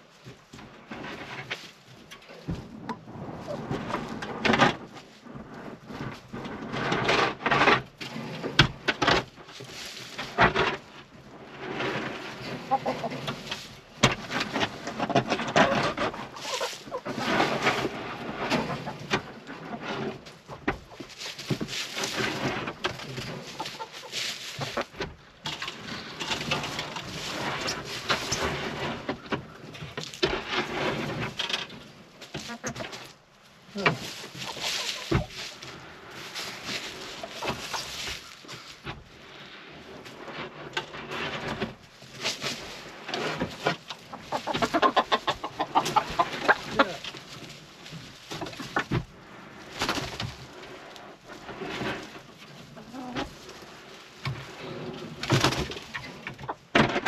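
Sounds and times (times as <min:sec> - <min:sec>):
rustling: 0:00.0 - 0:57.0
hens clucking: 0:11.8 - 0:31.4, 0:32.2 - 0:39.4, 0:40.3 - 0:56.7.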